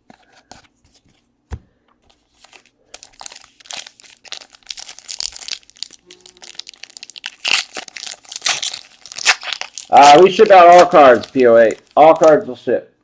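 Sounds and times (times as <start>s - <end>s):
wrapper tearing and crinkling: 2.4s - 12.4s.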